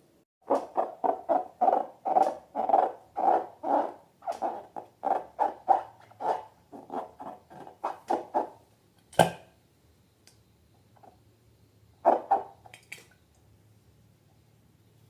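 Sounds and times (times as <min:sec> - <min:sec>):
short rubbery sounds: 0:00.5 - 0:08.5.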